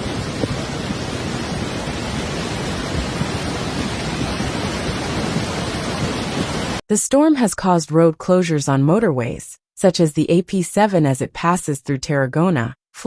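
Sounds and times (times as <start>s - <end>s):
floodwater rushing: 0.0s - 6.8s.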